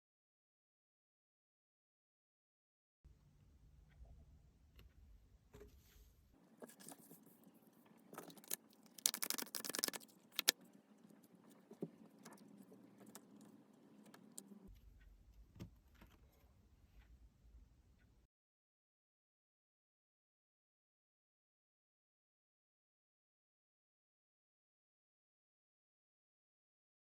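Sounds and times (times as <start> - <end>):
cards being shuffled: 8.2 - 10.6.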